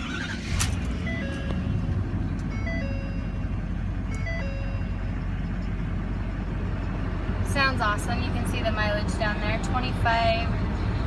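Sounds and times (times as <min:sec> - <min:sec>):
truck engine starting and idling: 0:00.0 - 0:11.0
electronic tone pattern: 0:01.0 - 0:05.1.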